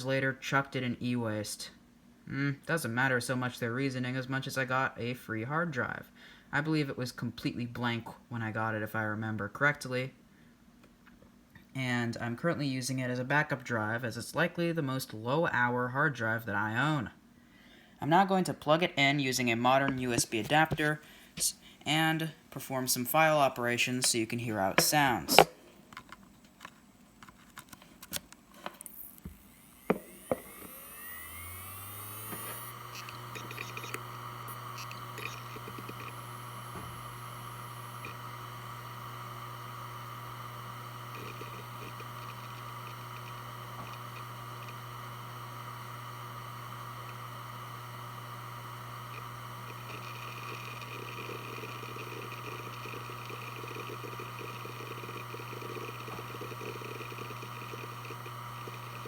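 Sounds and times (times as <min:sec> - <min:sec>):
hard drive seek chatter: 0:28.6 - 0:59.0
hard drive spinning whine: 0:28.6 - 0:59.0
hard drive clicks: 0:32.1 - 0:59.0.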